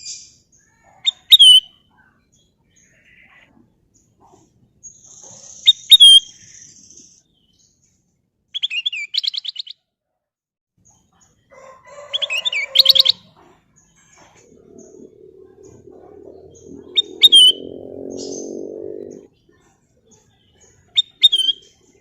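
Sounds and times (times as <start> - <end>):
bulbul singing: 14.2 - 19.3.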